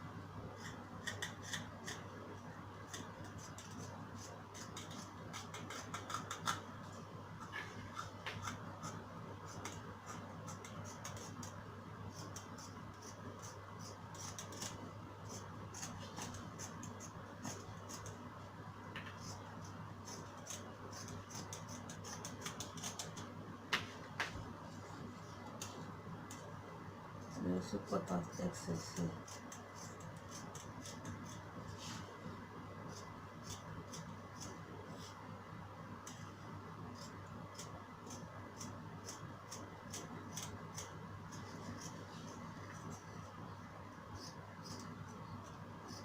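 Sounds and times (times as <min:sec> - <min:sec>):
low steady hum: 0:00.0 - 0:46.0
scissors snipping fabric: 0:02.9 - 0:06.6, 0:20.0 - 0:23.3, 0:36.9 - 0:42.0.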